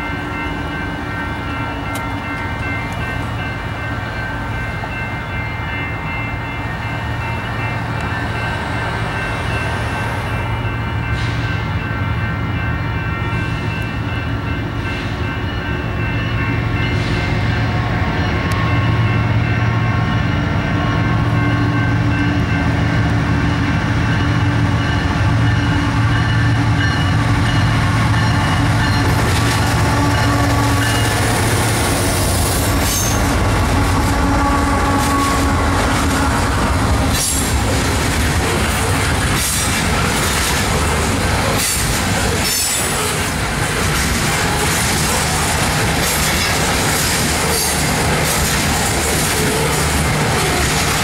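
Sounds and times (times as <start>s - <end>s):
diesel locomotive engines rumbling: 0.0s - 51.0s
wheels clickety-clack over rail joints: 26.8s - 51.0s.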